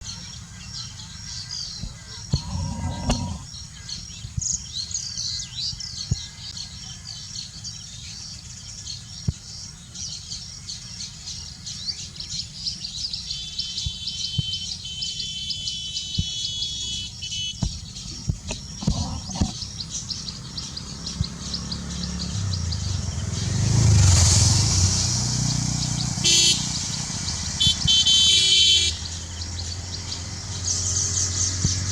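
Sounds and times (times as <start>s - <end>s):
low traffic rumble: 0.0s - 6.6s, 16.0s - 31.9s
birds chattering: 0.0s - 9.4s, 10.0s - 24.1s
vehicle passing: 18.3s - 31.9s.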